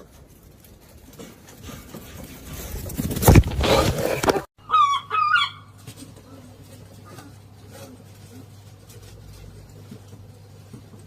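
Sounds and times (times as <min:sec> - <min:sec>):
loud scraping rustling: 0:00.0 - 0:04.5
chicken wavering call: 0:04.6 - 0:05.8.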